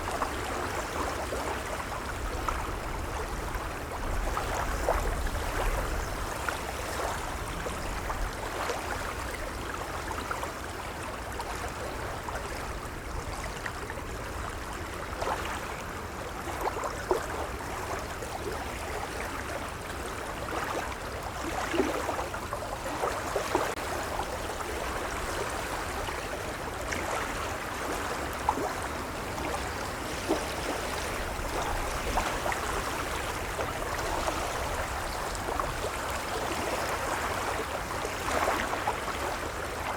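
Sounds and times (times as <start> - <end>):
gentle waves lapping: 0.0 - 39.9
small water splashes: 0.0 - 39.9.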